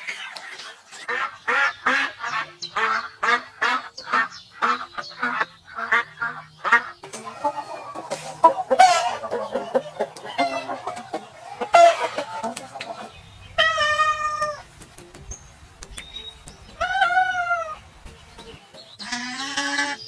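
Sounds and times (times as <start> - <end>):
long steady animal call: 0.0 - 14.7, 16.3 - 20.0
chickens clucking and squawking: 0.0 - 20.0
rooster crowing: 7.3 - 12.6.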